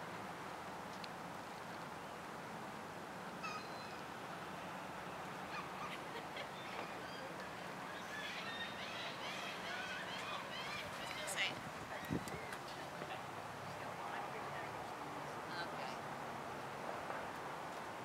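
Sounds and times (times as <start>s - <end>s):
birds chirping: 5.5s - 13.9s.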